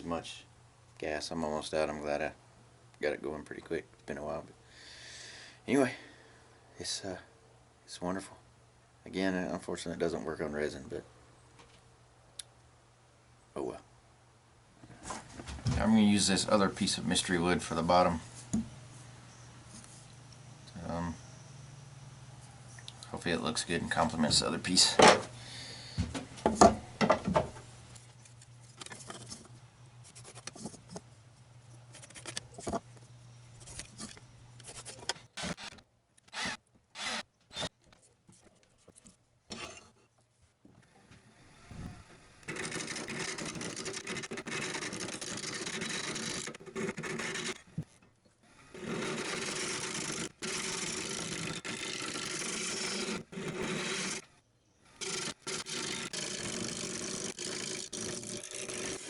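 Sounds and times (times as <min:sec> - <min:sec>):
wood lathe with tool rubbing: 0:42.1 - 0:47.6, 0:48.6 - 0:54.3, 0:54.9 - 0:59.0.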